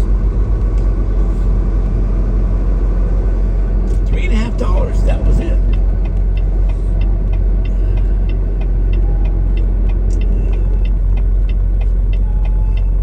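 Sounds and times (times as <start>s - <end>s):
diesel engine rumble: 0.0s - 13.0s
light regular ticking: 5.6s - 13.0s.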